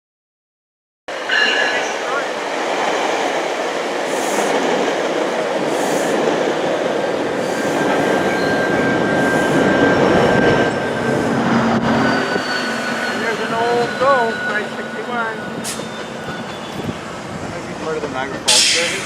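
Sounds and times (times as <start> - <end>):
train wheels rumbling on rail: 1.1 - 19.0
high wheel squeal: 7.4 - 17.6.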